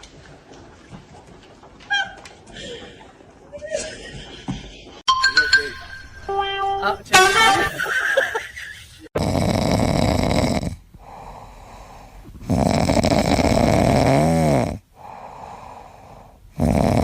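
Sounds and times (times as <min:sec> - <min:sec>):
brief high-pitched sound: 0:05.1 - 0:07.7
person snoring: 0:09.2 - 0:17.0.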